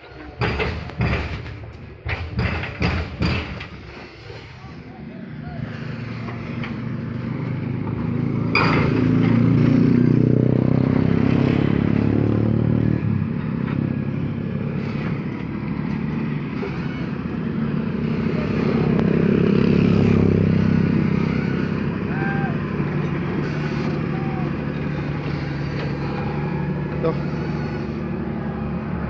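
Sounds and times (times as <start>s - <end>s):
sharp clatter: 8.5s - 9.6s
motor running: 16.5s - 28.6s.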